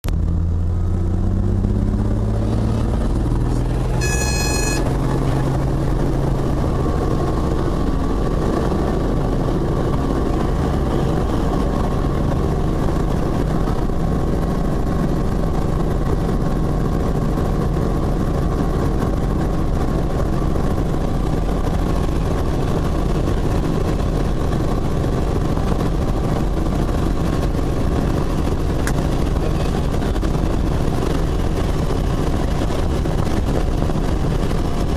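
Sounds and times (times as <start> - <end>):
helicopter engine and rotor: 2.1 - 34.9
short electronic beep: 3.9 - 5.0.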